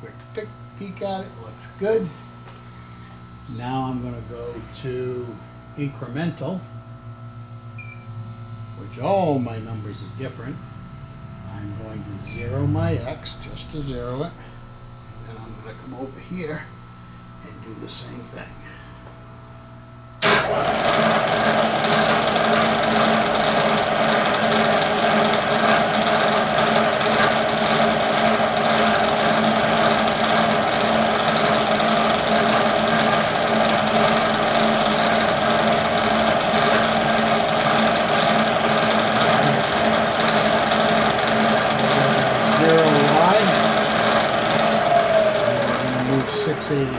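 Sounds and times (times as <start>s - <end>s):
electric motor humming: 8.1s - 18.8s, 20.2s - 46.9s.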